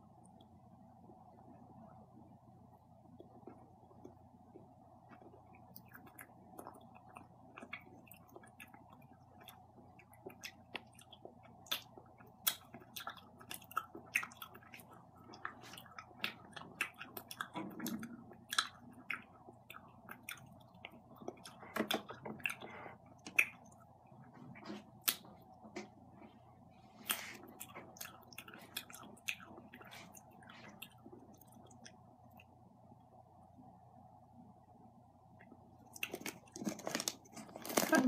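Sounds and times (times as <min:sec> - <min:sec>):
person chewing candy: 0:03.1 - 0:24.0, 0:26.9 - 0:32.6, 0:35.8 - 0:38.0
wet mouth clicks and smacks: 0:23.2 - 0:23.8.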